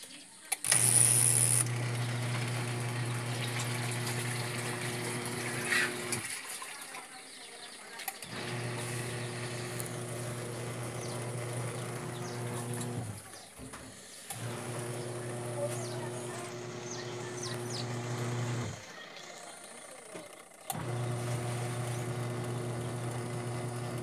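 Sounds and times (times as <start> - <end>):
washing machine running water: 0.6 - 24.0.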